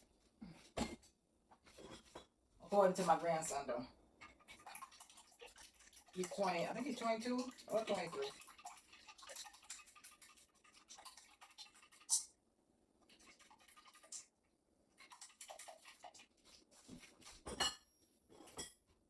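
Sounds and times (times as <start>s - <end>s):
dishes and utensils clinking: 17.0s - 18.8s.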